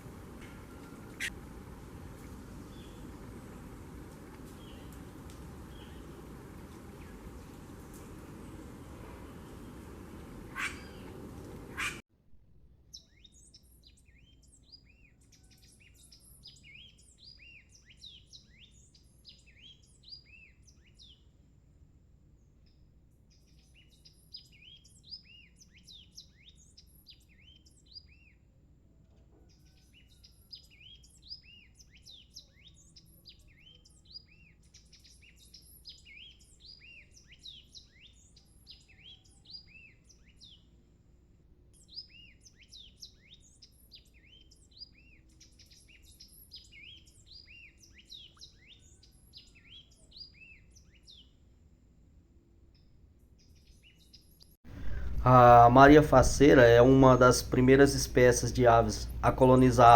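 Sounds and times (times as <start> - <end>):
birds chirping: 0.0 - 12.0, 41.8 - 51.3, 53.4 - 59.9
rushing noise: 54.7 - 56.6.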